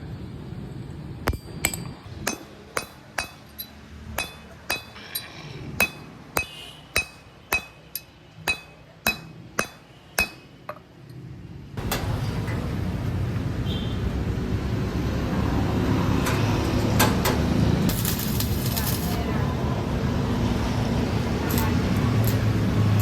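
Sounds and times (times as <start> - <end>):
hammer striking metal: 1.3 - 10.9.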